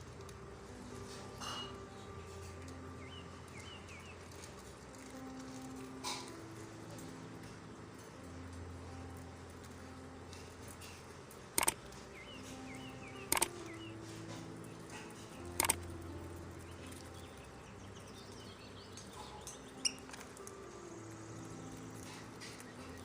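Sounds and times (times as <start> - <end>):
lovebirds chirping: 0.6 - 7.5, 8.1 - 23.0.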